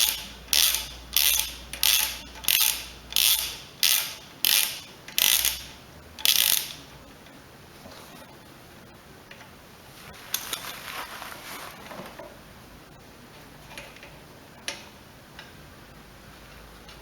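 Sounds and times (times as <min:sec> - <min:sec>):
ratchet wrench clicking: 0:00.0 - 0:06.8.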